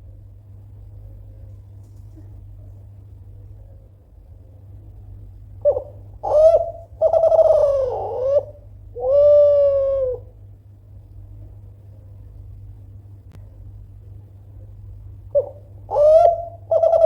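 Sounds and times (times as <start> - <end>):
dove cooing: 5.6 - 10.4, 15.3 - 17.0.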